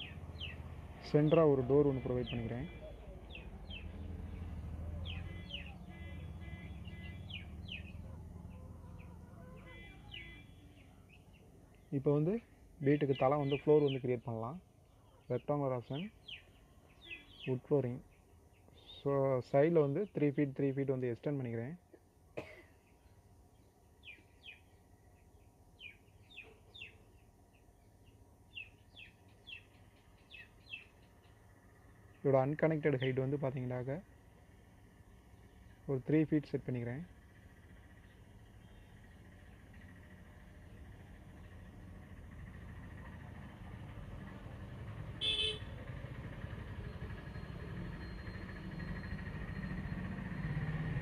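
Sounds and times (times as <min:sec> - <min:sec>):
birds chirping: 0:00.0 - 0:20.8, 0:22.7 - 0:42.6, 0:45.2 - 0:45.7.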